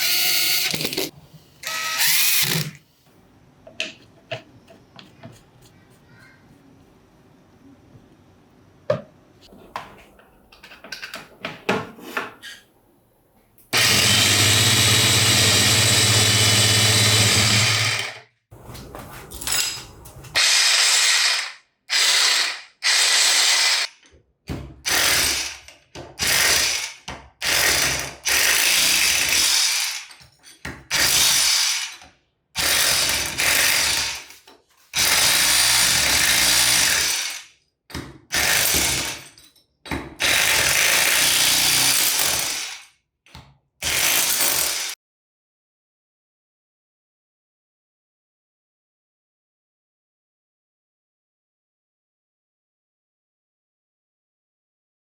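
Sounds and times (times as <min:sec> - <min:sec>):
hammer drill motor running: 0:00.0 - 0:02.8, 0:13.8 - 0:18.2, 0:20.4 - 0:23.9.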